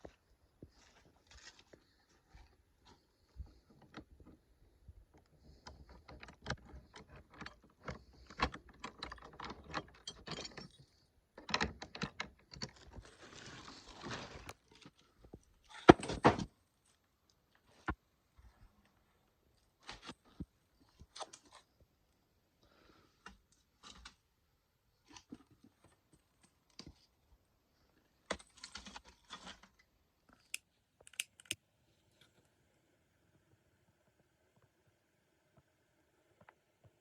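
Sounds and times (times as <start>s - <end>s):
rustling: 0.0s - 4.4s, 12.6s - 21.8s
metal objects clicking and rattling: 5.7s - 13.0s.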